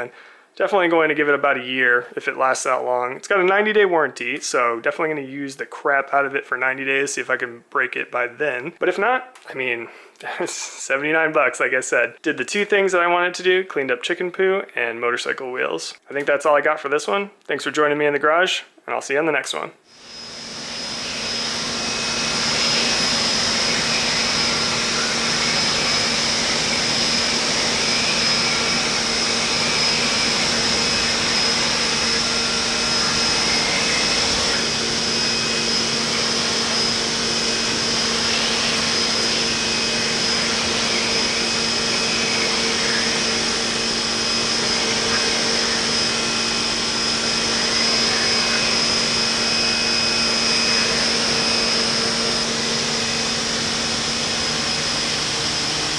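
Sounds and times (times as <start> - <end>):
pressure washer motor humming: 19.9 - 55.9.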